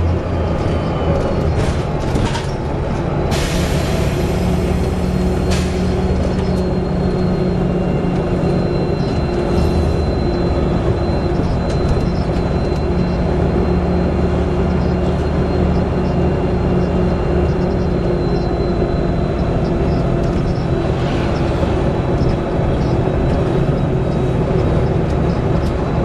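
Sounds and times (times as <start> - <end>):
diesel bus engine running: 0.0 - 26.0.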